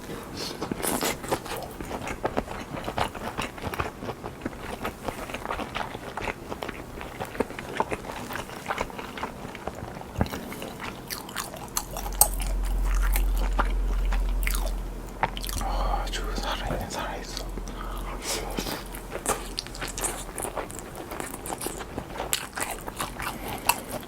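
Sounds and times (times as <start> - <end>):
crunching and chewing food: 0.0 - 24.0
low rumble: 11.4 - 22.0.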